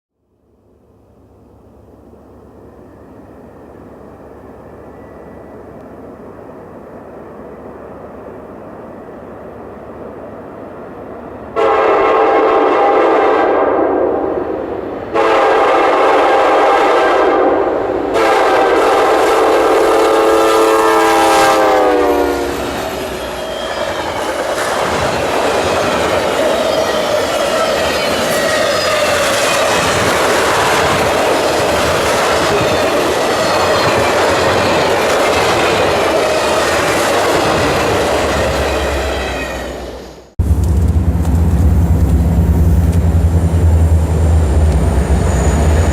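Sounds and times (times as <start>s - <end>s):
train approaching with rumble: 0.3s - 45.9s
locomotive air horn blasts: 11.6s - 14.4s, 15.1s - 23.8s
train wheels on rails: 14.3s - 45.9s.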